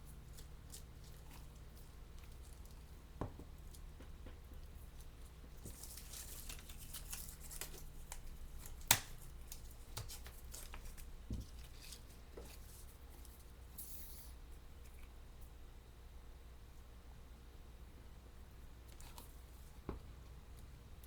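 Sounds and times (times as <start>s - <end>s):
paper rustling and crinkling: 4.8s - 13.5s.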